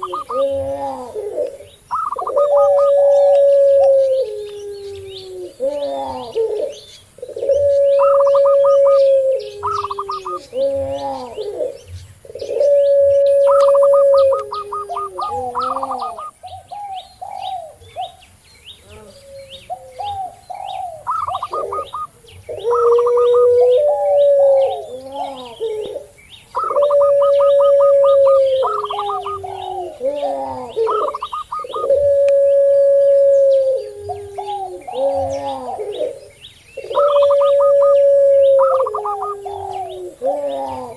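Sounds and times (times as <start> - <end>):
doves rippling stuttering coos: 0.0 - 6.7, 7.3 - 11.8, 12.4 - 16.4, 21.0 - 36.2, 36.8 - 40.9
dove long held coos: 0.0 - 40.9
small birds chirping: 0.0 - 40.9.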